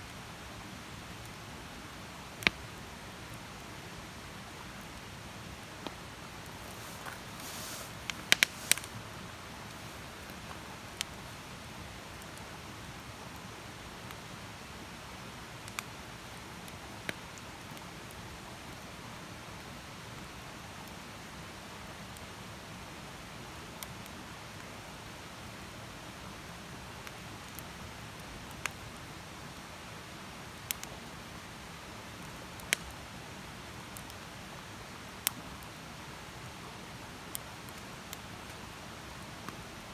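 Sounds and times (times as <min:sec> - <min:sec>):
campfire hissing: 0:00.1 - 0:39.9
wood fire crackling and popping: 0:02.3 - 0:03.7, 0:04.3 - 0:11.5, 0:32.1 - 0:33.0, 0:37.2 - 0:39.9
brief hiss: 0:06.6 - 0:09.0.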